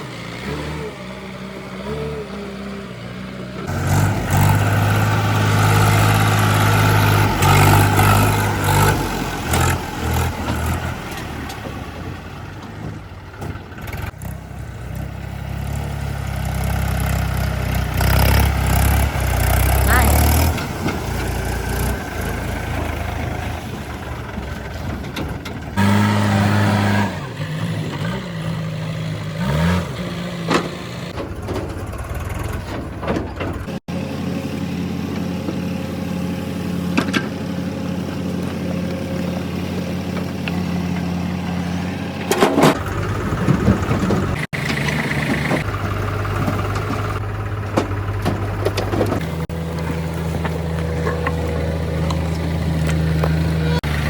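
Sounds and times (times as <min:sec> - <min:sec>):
heavy diesel engine revving: 0:00.0 - 0:54.0.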